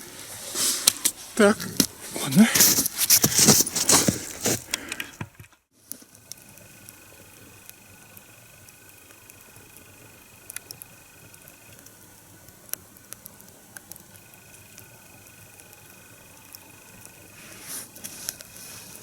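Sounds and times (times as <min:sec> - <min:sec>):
kindling crackling and popping: 0:00.6 - 0:19.0
low hiss: 0:06.0 - 0:19.0.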